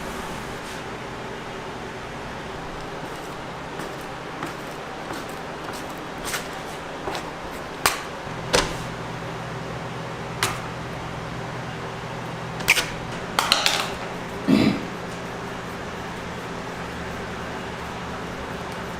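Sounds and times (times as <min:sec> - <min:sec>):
low machine hum: 0:00.0 - 0:18.9
utensils knocking and clattering: 0:12.6 - 0:14.2.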